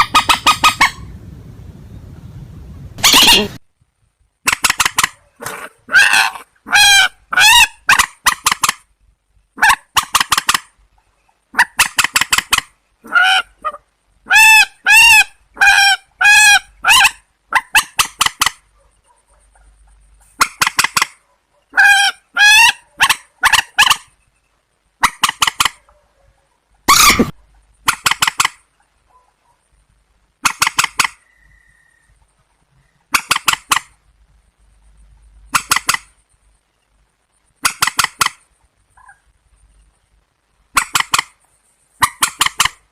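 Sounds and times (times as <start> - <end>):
waterbird harsh honking calls: 3.0 - 3.6.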